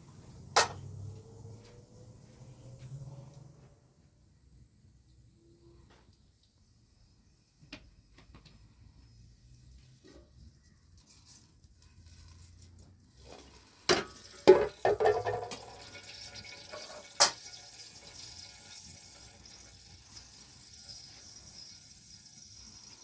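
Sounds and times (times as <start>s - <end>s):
soft hiss of water: 0.0s - 14.5s, 15.7s - 23.0s.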